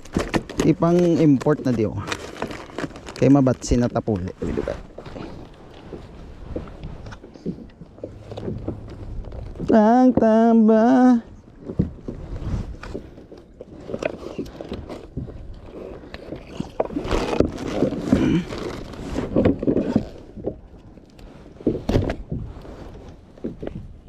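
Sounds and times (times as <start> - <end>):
scraping of gear: 11.6 - 24.0.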